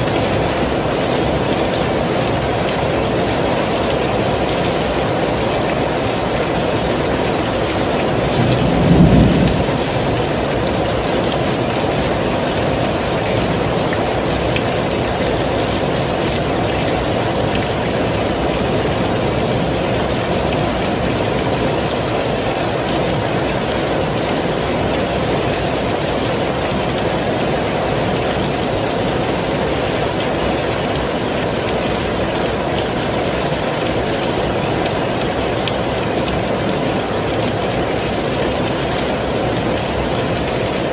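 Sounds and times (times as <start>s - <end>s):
heavy rainfall: 0.0s - 40.9s
low rumble: 8.4s - 10.3s.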